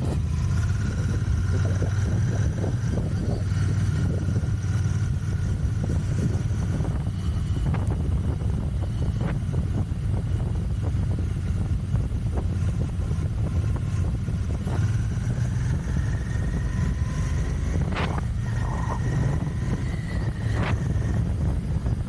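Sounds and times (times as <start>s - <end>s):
motorcycle engine rumble: 0.0s - 22.0s.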